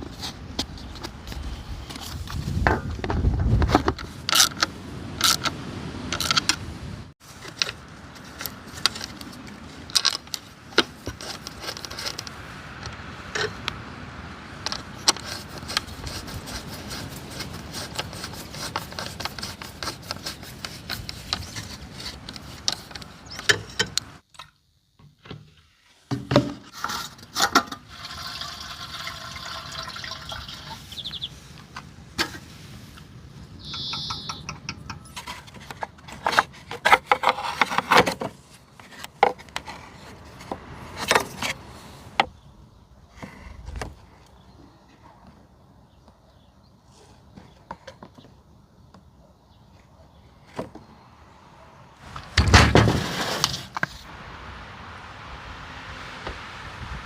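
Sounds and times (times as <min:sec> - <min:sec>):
liquid sound: 0:27.9 - 0:30.9.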